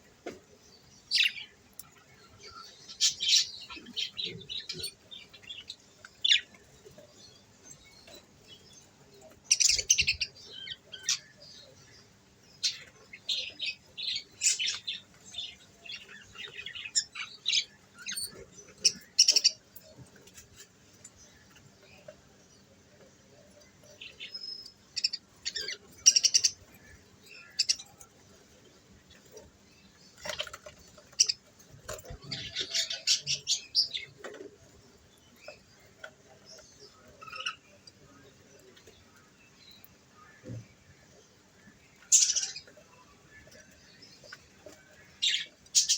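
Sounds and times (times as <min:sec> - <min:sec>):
budgerigars chirping: 0:42.1 - 0:42.7.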